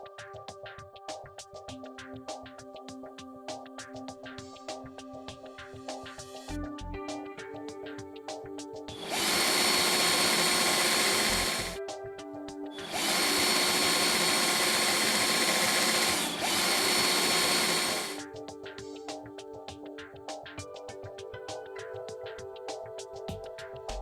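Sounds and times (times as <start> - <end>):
background music: 0.0 - 24.0
electric drill whining: 9.0 - 11.8, 12.8 - 18.2.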